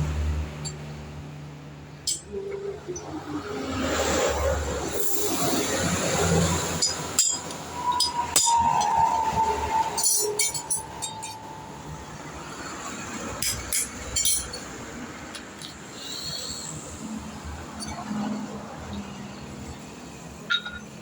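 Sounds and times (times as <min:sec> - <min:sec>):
metal clinks and knocks: 0:06.8 - 0:09.1, 0:09.9 - 0:11.7, 0:13.4 - 0:15.8, 0:20.5 - 0:21.0.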